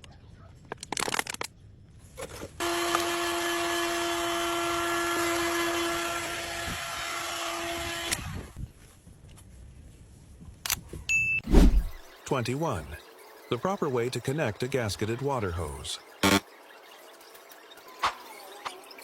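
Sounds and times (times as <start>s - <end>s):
electric power tool running: 2.6s - 8.5s, 16.2s - 16.4s.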